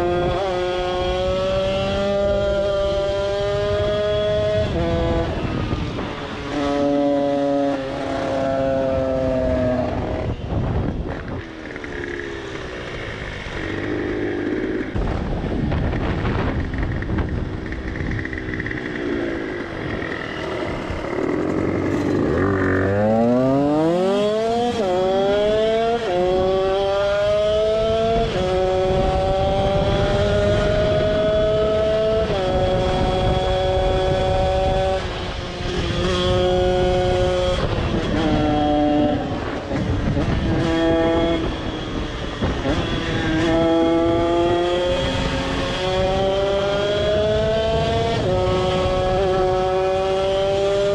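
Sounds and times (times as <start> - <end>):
two-stroke engine revving: 16.5 - 50.9.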